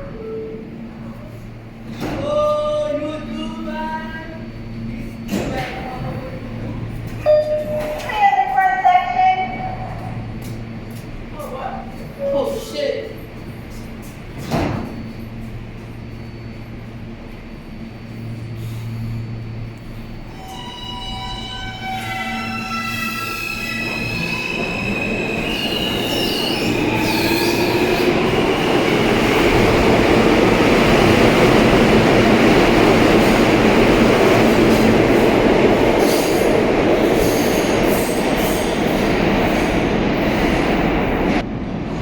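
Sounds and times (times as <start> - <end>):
rumble of wheels on rail: 0.0 - 42.0
train high whining tones: 14.9 - 35.2.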